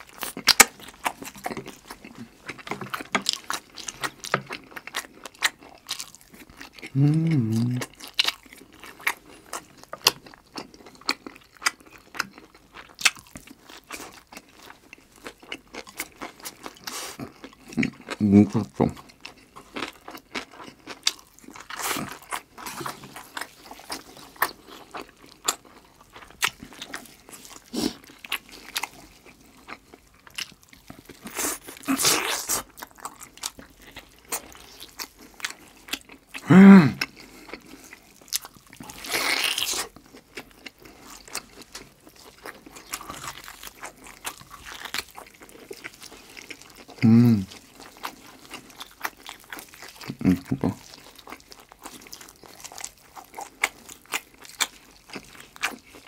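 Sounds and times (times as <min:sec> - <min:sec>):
chewing and biting: 0:00.0 - 0:56.0.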